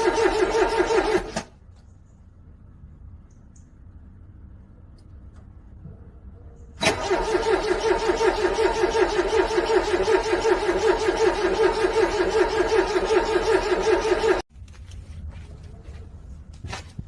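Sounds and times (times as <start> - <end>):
car starter motor cranking: 0.0 - 1.5, 6.8 - 14.4.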